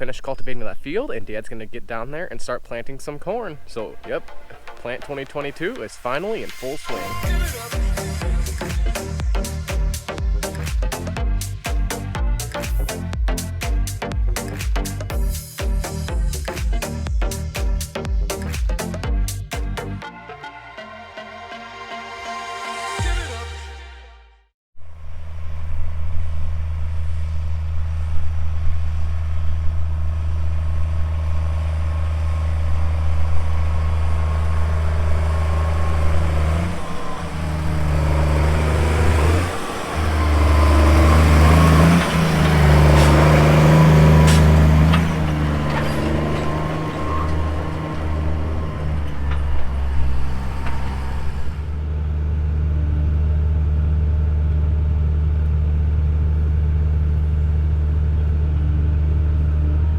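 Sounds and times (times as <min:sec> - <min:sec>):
tractor diesel engine droning: 0:00.0 - 0:24.0, 0:24.8 - 0:59.9
sharp clanks: 0:39.9 - 0:51.4.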